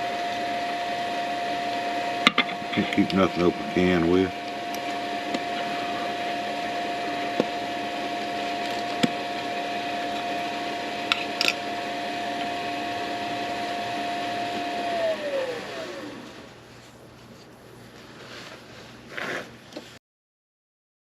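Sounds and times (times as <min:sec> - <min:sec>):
wood lathe motor running: 0:00.0 - 0:16.5.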